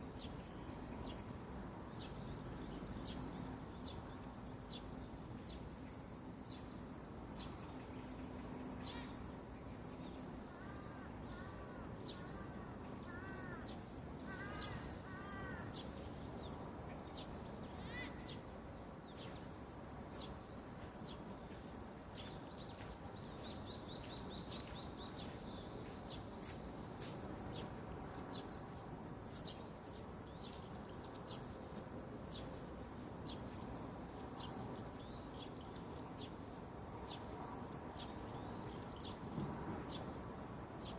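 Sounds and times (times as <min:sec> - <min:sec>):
background noise: 0:00.0 - 0:40.9
arched lower bird calls: 0:10.6 - 0:16.2, 0:17.2 - 0:18.5.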